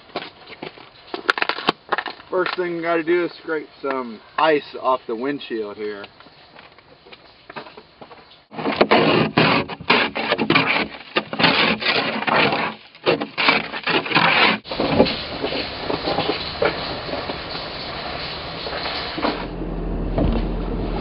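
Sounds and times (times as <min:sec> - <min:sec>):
ice scraping off windshield: 0:08.5 - 0:19.5
steady hiss: 0:14.7 - 0:19.5.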